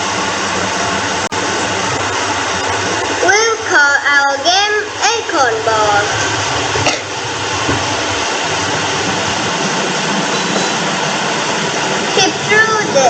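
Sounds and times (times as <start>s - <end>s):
steady rushing noise: 0.0s - 13.0s
person narrating: 3.2s - 6.3s, 12.1s - 13.0s.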